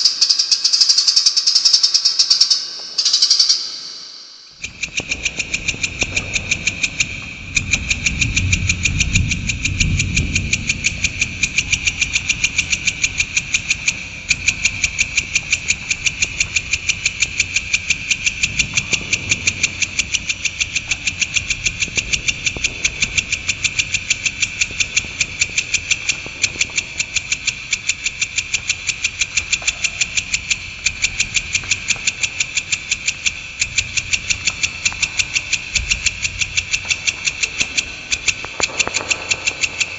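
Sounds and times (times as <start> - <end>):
bird chattering: 0.0 - 8.9
low rumble: 4.6 - 32.6, 33.2 - 39.9.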